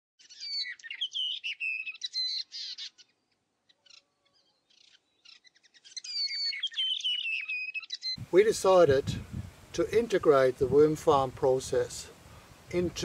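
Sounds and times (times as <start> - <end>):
songbirds chirping and whistling: 0.2 - 8.2.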